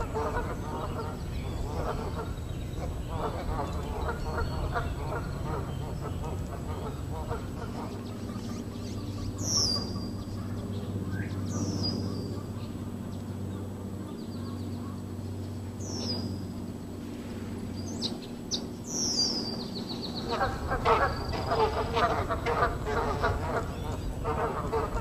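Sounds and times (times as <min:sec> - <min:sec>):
low background rumble: 0:00.0 - 0:25.0
songbird high descending calls: 0:07.8 - 0:12.8, 0:17.7 - 0:22.7.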